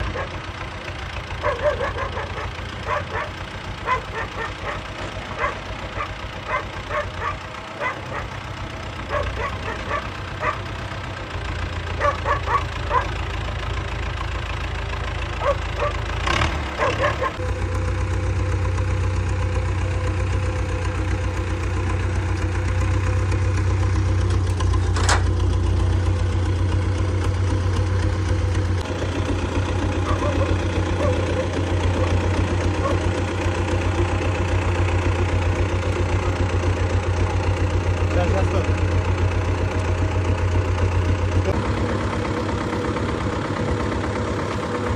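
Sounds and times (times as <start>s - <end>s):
dog barking: 0.0s - 0.4s, 1.4s - 8.4s, 9.1s - 10.7s, 12.0s - 13.2s, 15.4s - 16.1s, 16.8s - 17.4s, 30.0s - 32.2s, 32.8s - 33.1s
engine droning: 0.0s - 44.9s.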